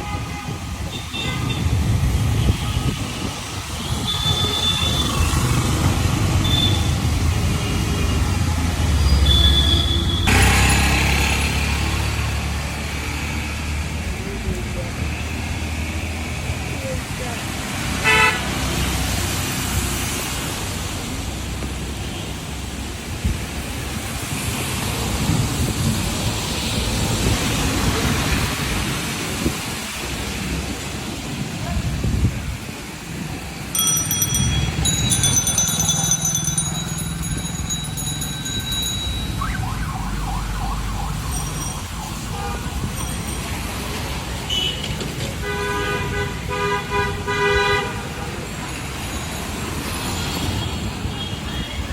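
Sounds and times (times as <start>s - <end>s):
street traffic: 0.0s - 51.9s
rickshaw bells ringing rapidly: 8.3s - 12.0s, 33.7s - 39.6s, 41.1s - 44.5s
vehicle horn honk: 18.0s - 18.4s, 42.3s - 42.7s, 44.5s - 48.1s.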